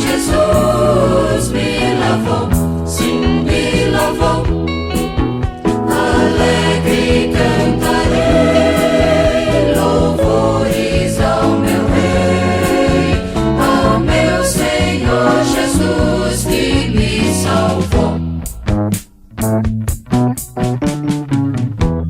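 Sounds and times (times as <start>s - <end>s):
vocal group singing in harmony: 0.0s - 4.7s, 5.8s - 18.3s
band accompaniment with steady beat: 0.0s - 22.0s.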